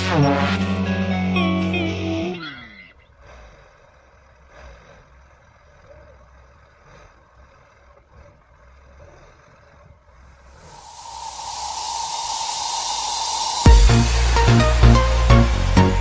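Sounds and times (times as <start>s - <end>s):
background music: 0.0s - 2.4s, 12.4s - 16.0s
vehicle engine rumble: 0.0s - 16.0s.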